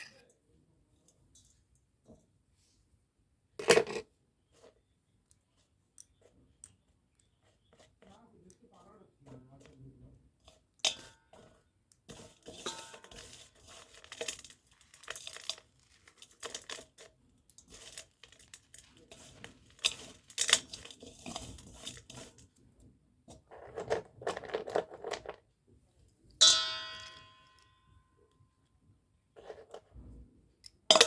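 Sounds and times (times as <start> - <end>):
scratchy rubbing and clicking: 9.3 - 22.6
sharp ringing clink: 26.4 - 27.9.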